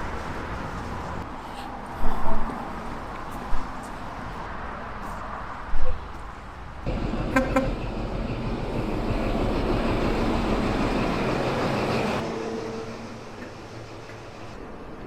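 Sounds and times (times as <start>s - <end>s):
train rumbling: 6.8s - 15.0s.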